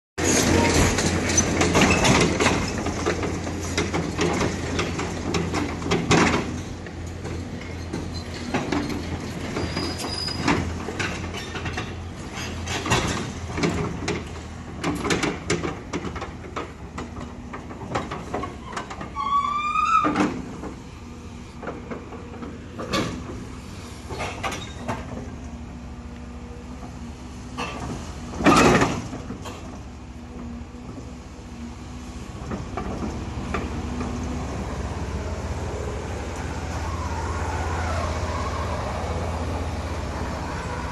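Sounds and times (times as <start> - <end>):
excavator engine humming: 0.2 - 40.9
rising squeal: 35.8 - 40.9.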